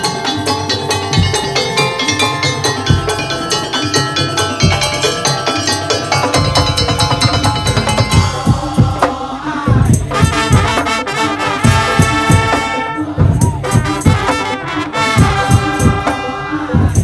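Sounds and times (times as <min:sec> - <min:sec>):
drum and percussion beats: 0:00.0 - 0:17.0
brass-like wind melody: 0:07.1 - 0:17.0.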